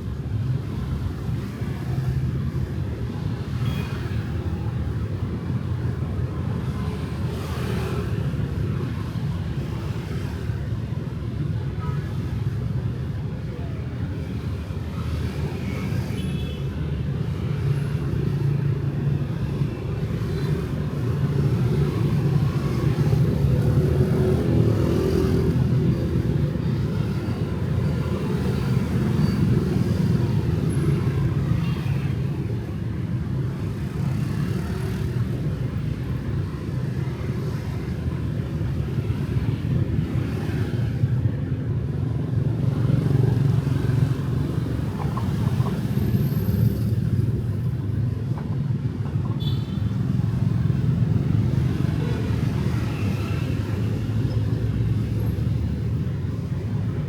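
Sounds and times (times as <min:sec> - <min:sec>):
motorbikes and cars passing: 0:00.0 - 0:57.0
traffic rumble: 0:16.8 - 0:57.0.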